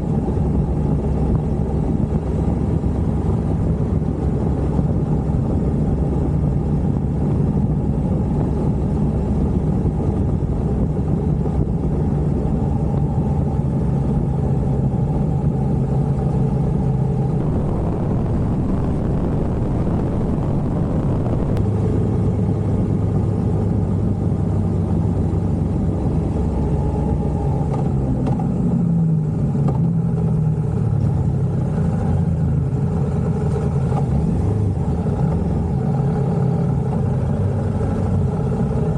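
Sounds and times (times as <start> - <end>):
vehicle engine running: 17.4 - 21.6.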